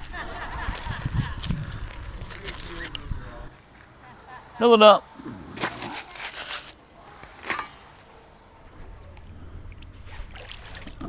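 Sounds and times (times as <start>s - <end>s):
rustling and scraping handling noises: 3.6s - 8.7s.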